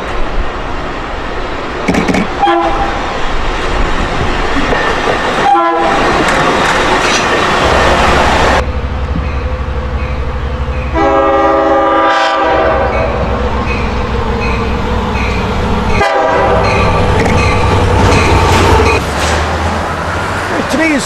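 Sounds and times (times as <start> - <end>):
train rumbling past: 0.0 - 21.0
train horn blasts: 2.4 - 2.9, 5.4 - 6.0, 10.9 - 13.3, 15.9 - 16.8.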